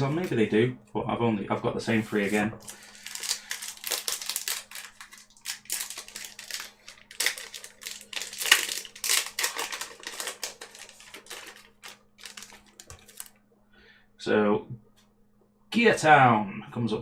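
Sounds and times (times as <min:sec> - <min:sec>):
faint steady hum: 0:00.0 - 0:17.0
foil wrapper crinkling and tearing: 0:02.1 - 0:13.4.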